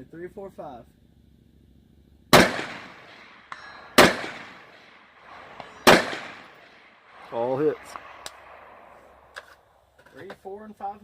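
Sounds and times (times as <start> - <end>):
rifle shots with echo: 2.3 - 9.8
bullet ringing steel target: 2.4 - 7.0.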